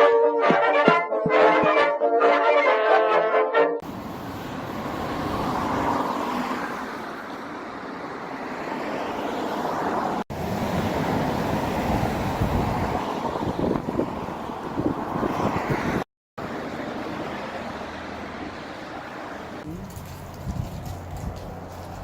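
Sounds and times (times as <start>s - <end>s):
brass music sting: 0.0s - 3.8s
car road noise: 3.8s - 22.0s.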